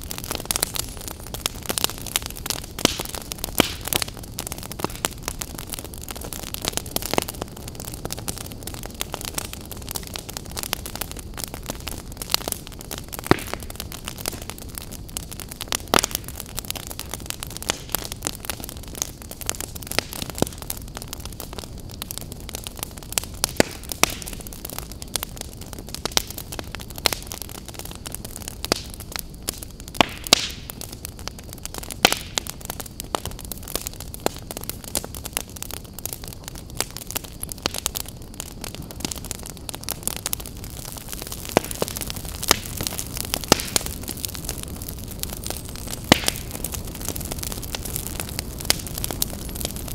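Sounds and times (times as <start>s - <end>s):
campfire crackling and popping: 0.0s - 49.9s.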